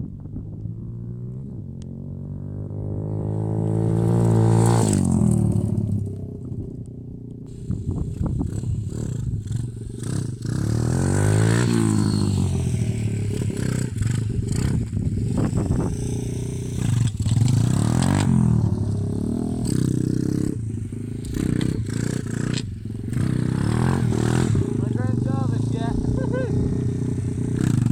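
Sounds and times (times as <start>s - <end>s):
small motorbike engine revving: 3.2s - 6.1s, 7.5s - 27.9s.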